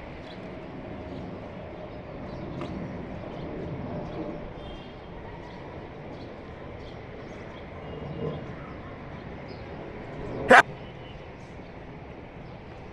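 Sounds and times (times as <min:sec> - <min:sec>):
steady background noise: 0:08.4 - 0:12.9.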